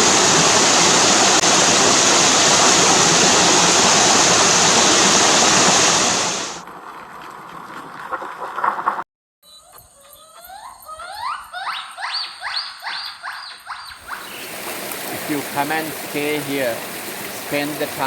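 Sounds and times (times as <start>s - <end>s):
stream water rushing: 0.0s - 6.6s, 14.0s - 18.0s.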